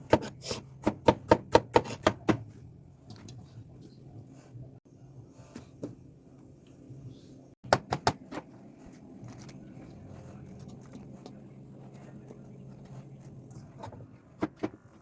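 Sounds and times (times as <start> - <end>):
low steady hum: 2.4 - 15.0.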